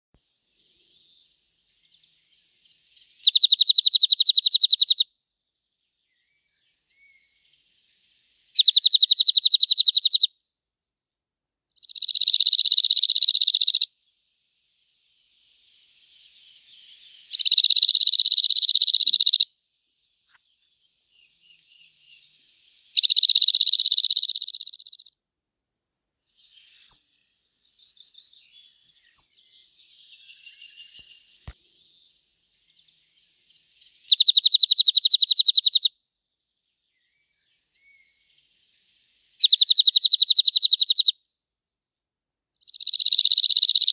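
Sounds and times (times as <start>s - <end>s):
songbird trill: 0.2s - 10.4s, 11.7s - 25.2s, 26.3s - 41.7s, 42.6s - 43.9s
faint bird calls: 1.8s - 5.1s, 6.0s - 10.3s, 11.8s - 13.9s, 16.0s - 19.5s, 20.2s - 25.2s, 26.4s - 32.0s, 32.6s - 35.9s, 36.9s - 41.2s, 42.6s - 43.9s
high bird chirps: 1.9s - 5.0s, 6.1s - 10.3s, 11.8s - 13.9s, 15.4s - 19.5s, 20.2s - 25.2s, 26.4s - 35.9s, 36.9s - 41.1s, 42.6s - 43.9s.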